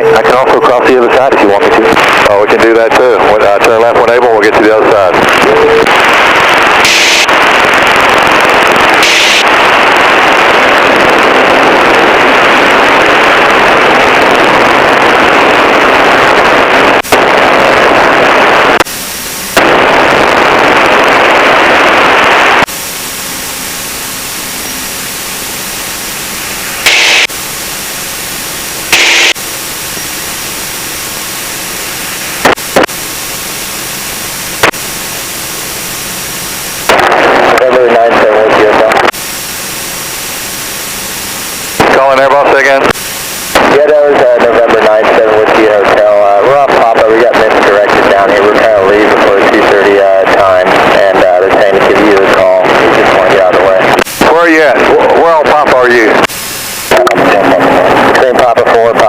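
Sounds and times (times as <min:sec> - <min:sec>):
radio static hiss: 0:00.0 - 0:59.0
radio squelch pops and clicks: 0:05.2 - 0:10.4.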